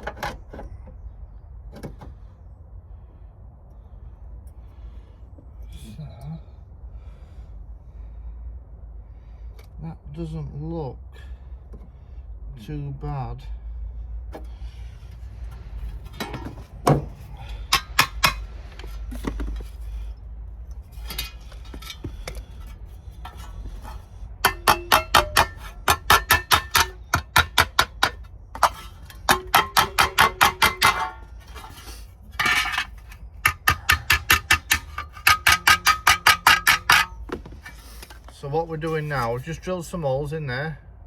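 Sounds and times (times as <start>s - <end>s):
hammer tapping sheet steel: 17.7s - 18.6s, 24.4s - 31.7s, 32.4s - 37.3s.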